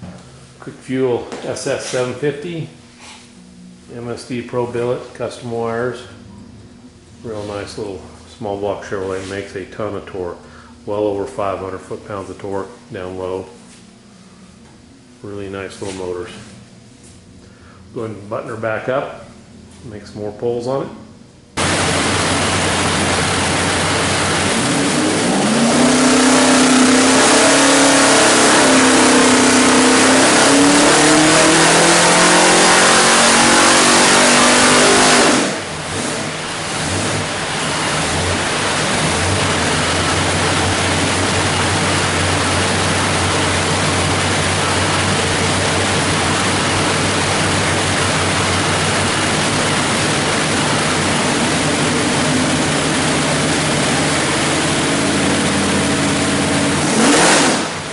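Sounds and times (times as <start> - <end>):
engine revving on a dyno: 21.6 - 57.9.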